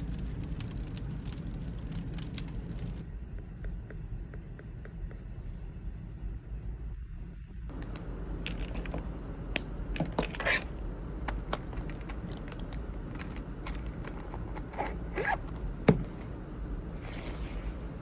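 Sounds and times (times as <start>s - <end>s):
fire low rumble: 0.0s - 3.0s, 6.4s - 18.0s
firewood crackling and popping: 0.0s - 3.0s, 11.2s - 14.5s.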